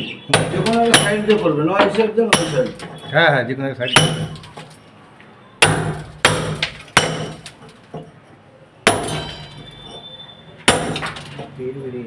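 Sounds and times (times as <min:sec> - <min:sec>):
ringing hammer strikes: 0:00.3 - 0:03.1, 0:04.0 - 0:04.8, 0:05.6 - 0:07.8, 0:08.9 - 0:11.6.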